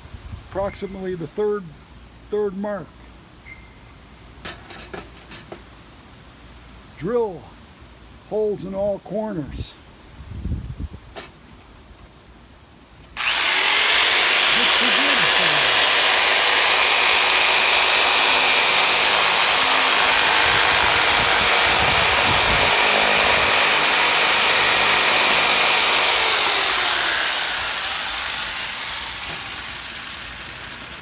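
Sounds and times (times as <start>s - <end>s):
electric motor running and winding down: 13.2s - 31.0s.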